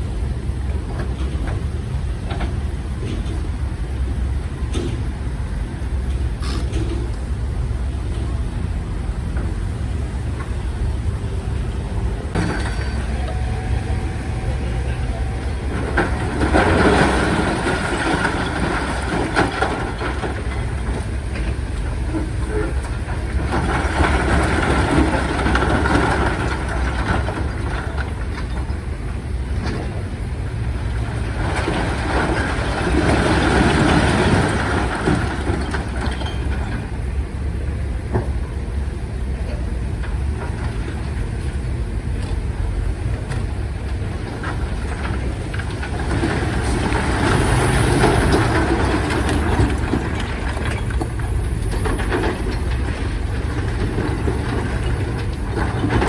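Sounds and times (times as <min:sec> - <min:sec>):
diesel machinery rumble: 0:00.0 - 0:56.0
machinery clanks: 0:11.6 - 0:28.8.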